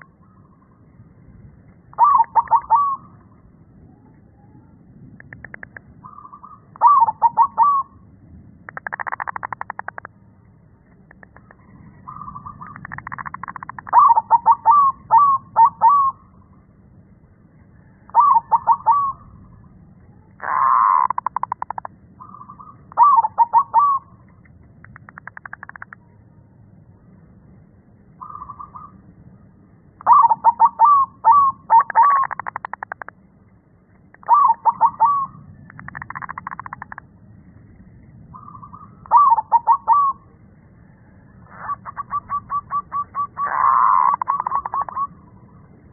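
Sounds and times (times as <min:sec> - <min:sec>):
dove cooing: 0:01.9 - 0:03.3, 0:05.3 - 0:08.0, 0:11.1 - 0:16.2, 0:18.1 - 0:19.4, 0:20.4 - 0:24.2, 0:30.0 - 0:33.1, 0:34.2 - 0:37.0, 0:38.4 - 0:40.4, 0:41.4 - 0:45.5.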